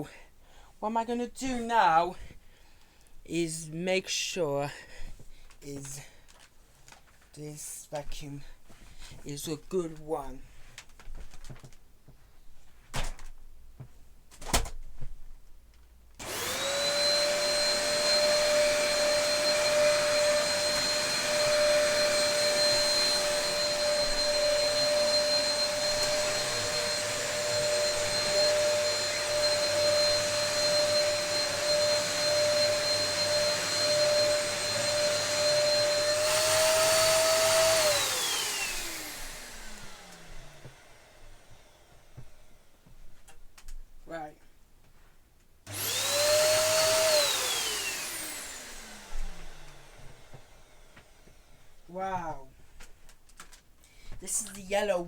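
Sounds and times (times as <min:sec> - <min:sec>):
vacuum motor winding down: 0:16.2 - 0:41.8, 0:45.7 - 0:51.0
vacuum cleaner running: 0:16.2 - 0:42.9, 0:45.7 - 0:52.2.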